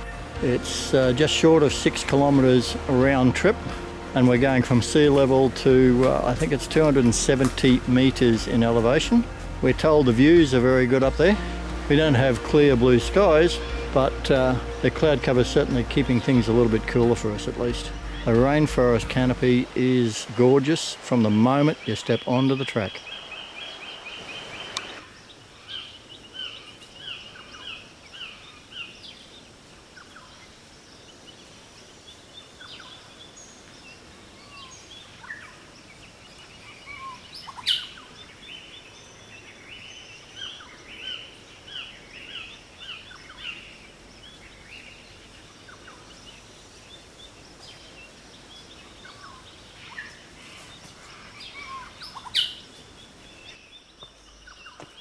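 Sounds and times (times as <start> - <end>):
birds calling and chirping: 0.0 - 55.0
faint forest hum: 0.0 - 55.0
sharp loud bird calls: 10.8 - 29.1, 32.4 - 55.0.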